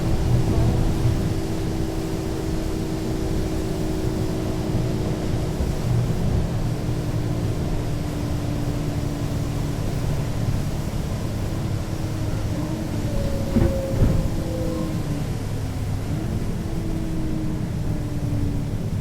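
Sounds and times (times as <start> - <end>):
bus engine rumble: 0.0 - 19.0.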